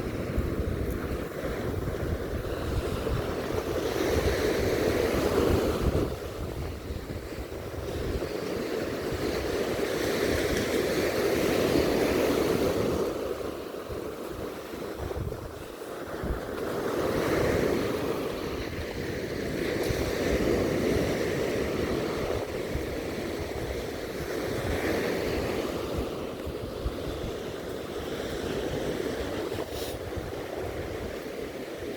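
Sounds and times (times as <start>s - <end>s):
sea waves breaking on beach: 0.0s - 31.9s
wind buffeting microphone: 0.0s - 31.9s.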